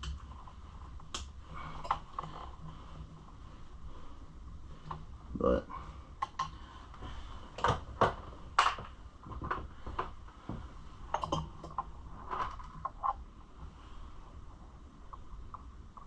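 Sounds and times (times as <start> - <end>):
tools knocking and scraping: 7.6 - 13.2.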